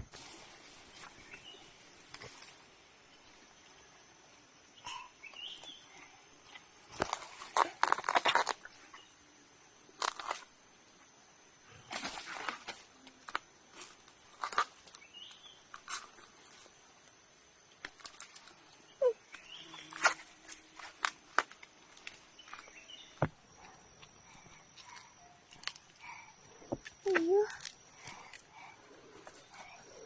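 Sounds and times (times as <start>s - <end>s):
faint bird chirps: 0.9s - 6.6s, 18.4s - 20.9s, 22.0s - 30.0s.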